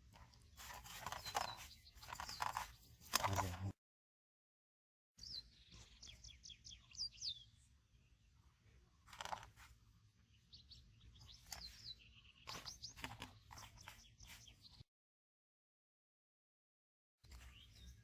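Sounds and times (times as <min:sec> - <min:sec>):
small birds chirping: 0:00.0 - 0:03.7, 0:05.2 - 0:14.9, 0:17.2 - 0:18.0.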